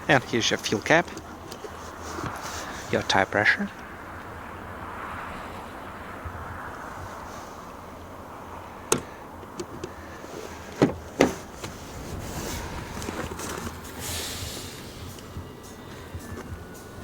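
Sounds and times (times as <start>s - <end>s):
car latches clicking and clunking: 8.9s - 11.8s.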